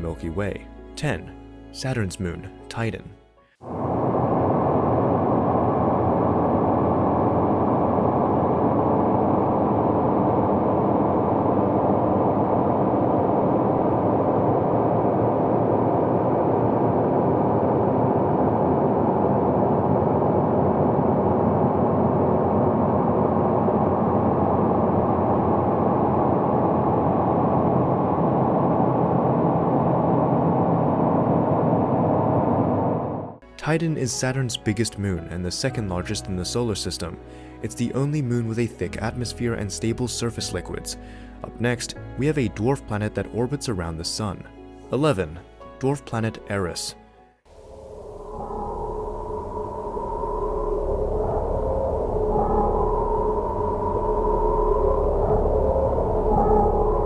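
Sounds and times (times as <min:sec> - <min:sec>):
steady low rumbling: 0:03.6 - 0:33.4, 0:47.5 - 0:57.0.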